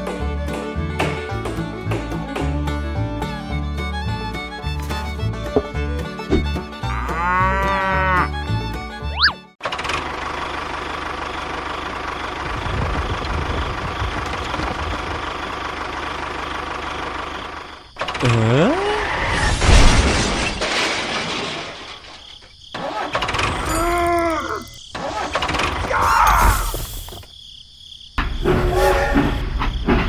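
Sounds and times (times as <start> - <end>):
rough clatter: 19.5 - 22.5.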